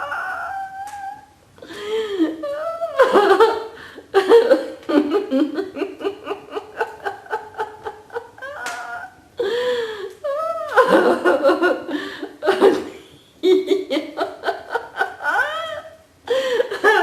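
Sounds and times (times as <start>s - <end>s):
people laughing rhythmically: 1.7s - 9.0s, 10.6s - 12.9s, 13.5s - 17.0s.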